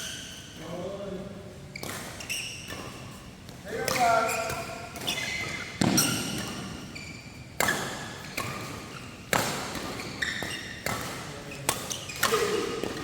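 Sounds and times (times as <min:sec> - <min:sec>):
shoe squeaks: 0:00.0 - 0:00.8, 0:01.7 - 0:13.0
rackets striking shuttlecock: 0:03.7 - 0:06.8, 0:07.5 - 0:13.0.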